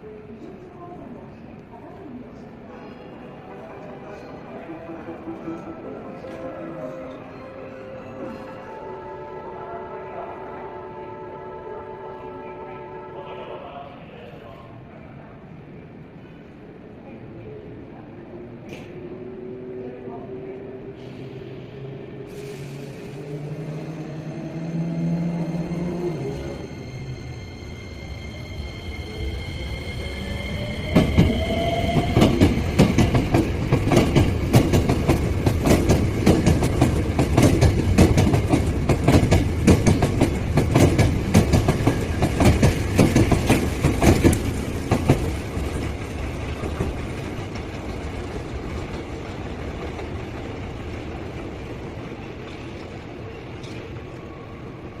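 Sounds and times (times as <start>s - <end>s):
train wheels clattering over rails: 30.9s - 54.0s.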